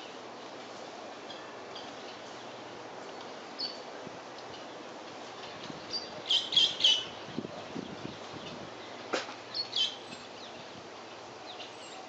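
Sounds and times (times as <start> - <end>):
bird chirping: 1.3 - 3.9, 5.4 - 7.2, 7.8 - 10.7, 11.4 - 12.0.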